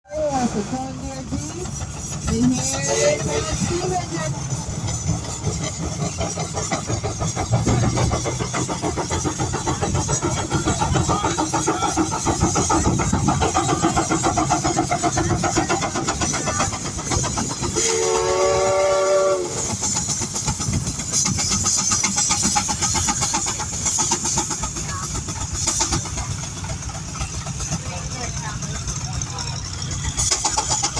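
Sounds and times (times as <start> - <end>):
steam engine exhaust beating: 0.1 - 30.9
steam whistle: 2.8 - 3.7, 17.7 - 19.8.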